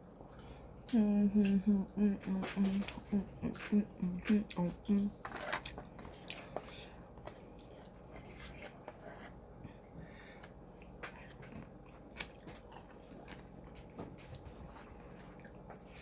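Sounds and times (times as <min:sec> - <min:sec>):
person biting and chewing: 0:10.8 - 0:14.0.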